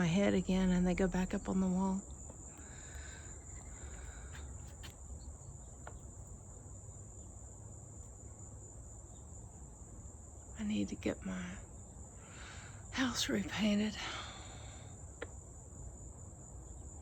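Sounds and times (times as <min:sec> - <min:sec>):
low rumble: 0:00.0 - 0:02.3
high-pitched insect chorus: 0:00.0 - 0:17.0.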